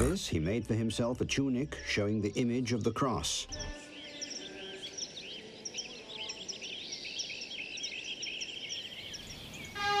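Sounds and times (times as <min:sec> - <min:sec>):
faint outdoor hiss: 0:00.0 - 0:10.0
wild birds chirping: 0:00.0 - 0:10.0.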